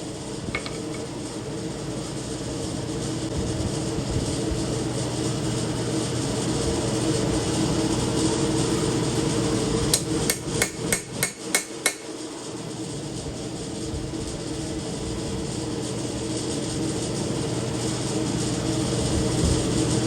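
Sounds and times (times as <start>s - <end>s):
steady background roar: 0.5s - 1.5s
hammer striking steel on anvil: 0.6s - 1.1s, 9.9s - 12.1s.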